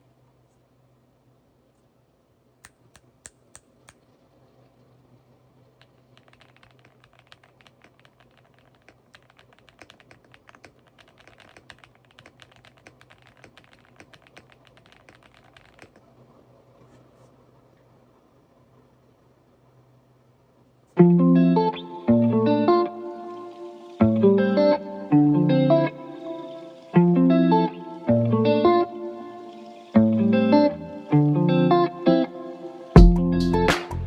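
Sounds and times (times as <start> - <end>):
typing on mechanical keyboard: 5.8 - 16.0.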